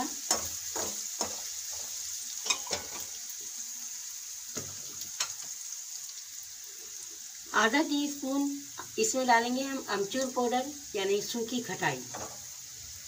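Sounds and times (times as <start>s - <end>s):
chillies sizzling in oil: 0.0s - 13.0s
metal spoon scraping and knocking pan: 0.2s - 3.1s, 12.1s - 12.4s.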